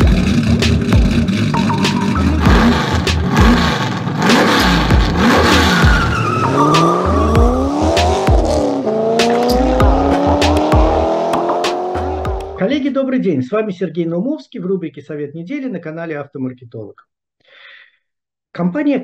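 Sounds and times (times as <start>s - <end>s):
heavy low pulses: 0.0s - 12.6s
racing car engine revving: 0.0s - 12.6s.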